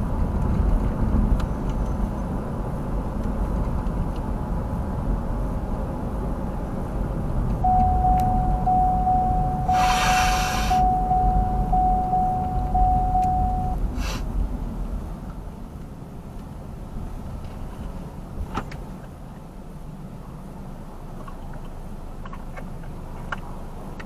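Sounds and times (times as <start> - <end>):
car cabin road noise: 0.0 - 24.0
pulsing electronic warning tone: 7.6 - 13.8
short hiss: 9.7 - 10.8, 14.0 - 14.3.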